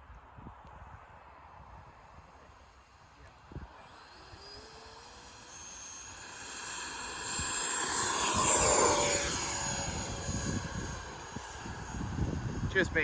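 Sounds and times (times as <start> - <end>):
model jet engine whine: 1.1 - 13.0
wind buffeting microphone: 3.4 - 13.0.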